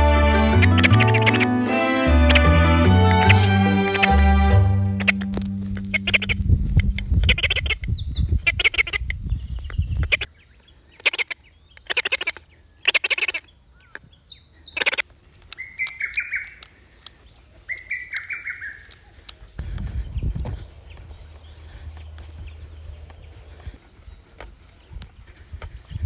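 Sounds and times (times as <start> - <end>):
falling bird notes: 0.0 - 7.9
wild birds chirping: 0.0 - 26.0
sharp clicks: 0.6 - 1.5, 2.2 - 4.2, 4.9 - 7.8, 14.8 - 19.4
low rumbling noise: 2.1 - 10.1.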